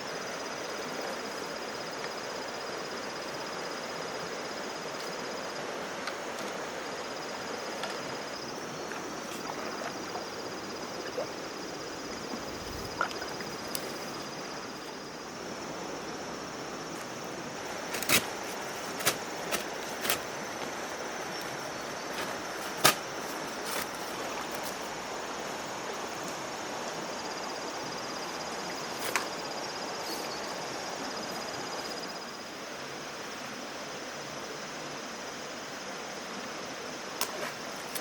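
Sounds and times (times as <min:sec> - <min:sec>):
outdoor background noise: 0:00.0 - 0:38.0
insect trilling: 0:06.2 - 0:25.5.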